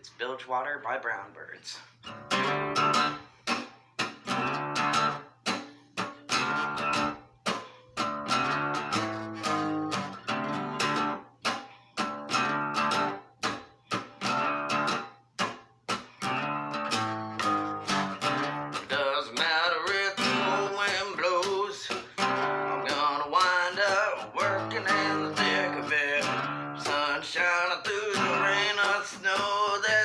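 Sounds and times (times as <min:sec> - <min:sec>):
acoustic guitar strumming: 0:02.0 - 0:30.0.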